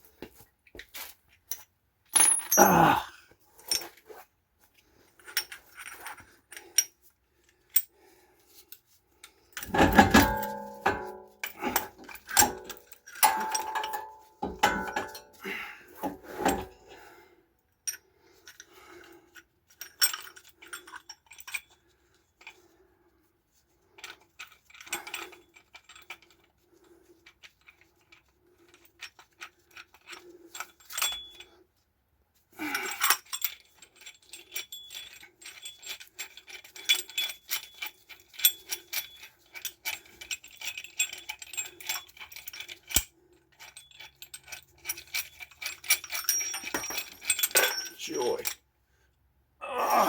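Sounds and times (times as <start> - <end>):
metal tools clinking and rattling: 1.0 - 3.0, 3.6 - 4.2, 5.2 - 7.0, 8.7 - 16.8, 17.9 - 21.8, 24.0 - 26.5, 27.2 - 31.6, 32.6 - 48.6.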